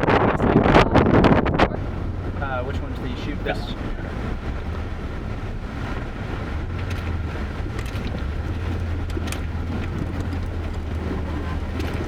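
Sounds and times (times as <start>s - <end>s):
vehicle engine idling: 1.4s - 12.0s
faint clicks: 6.8s - 12.0s.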